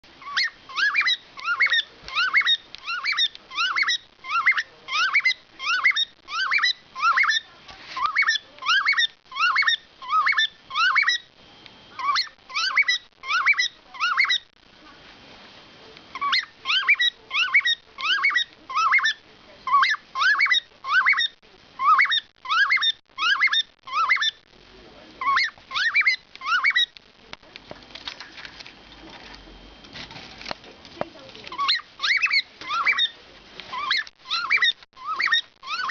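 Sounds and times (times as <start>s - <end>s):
cockatiel whistling song: 0.2s - 11.3s, 11.9s - 14.5s, 16.1s - 24.4s, 25.2s - 26.9s, 31.5s - 35.9s.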